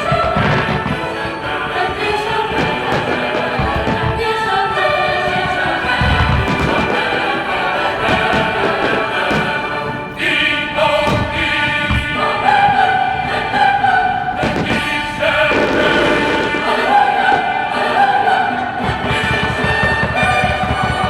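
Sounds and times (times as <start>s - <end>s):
low thuds: 0.0s - 10.2s, 10.9s - 12.7s, 14.3s - 17.6s
choral and orchestral music: 0.0s - 21.0s.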